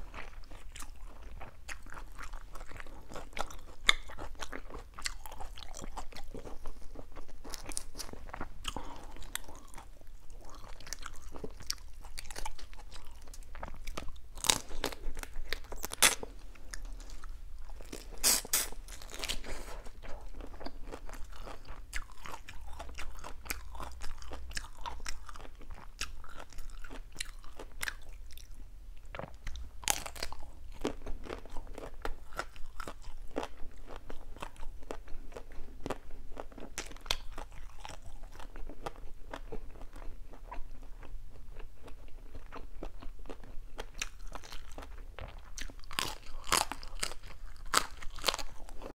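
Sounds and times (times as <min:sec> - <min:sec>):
chewing and crunching shrimp: 0:00.0 - 0:48.9.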